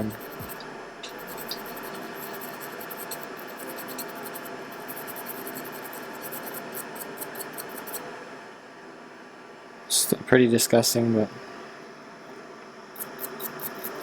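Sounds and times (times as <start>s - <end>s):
scratchy scrubbing on circuit board: 0.0s - 8.0s, 13.0s - 14.0s.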